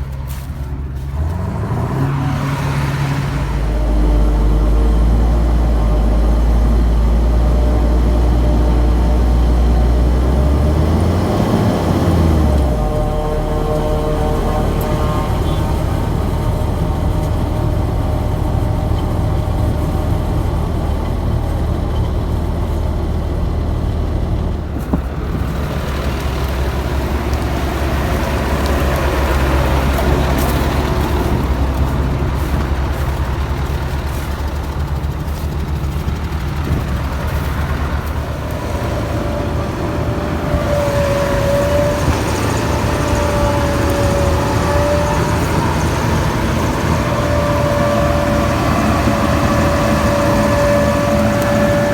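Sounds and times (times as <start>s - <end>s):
diesel engines under heavy load: 0.0s - 51.9s
wavering whine: 11.1s - 22.0s.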